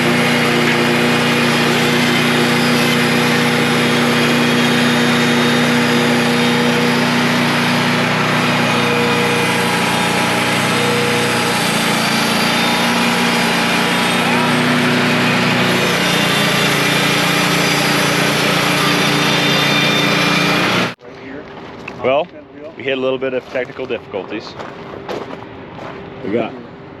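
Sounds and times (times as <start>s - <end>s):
sawmill engine running steadily: 0.0s - 21.0s.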